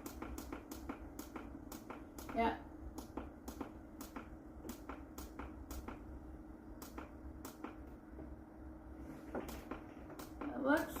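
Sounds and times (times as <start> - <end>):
control panel buttons clicking: 0.0 - 6.1, 6.8 - 7.9
compressor humming: 0.0 - 11.0.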